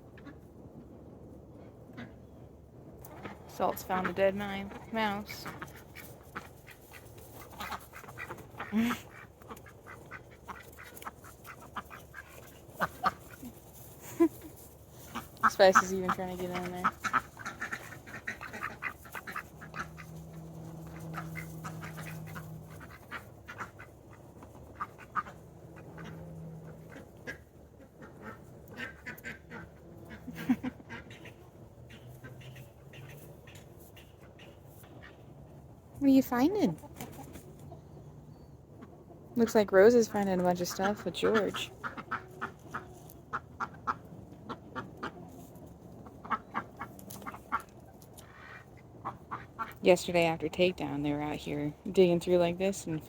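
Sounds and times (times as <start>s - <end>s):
low steady hum: 0.0s - 53.0s
ducks quacking: 3.1s - 13.6s, 15.0s - 35.3s, 39.8s - 49.9s.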